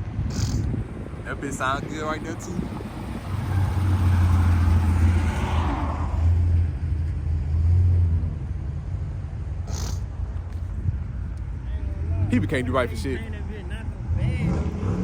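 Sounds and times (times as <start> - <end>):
car engine revving: 2.8 - 6.7, 14.0 - 15.0.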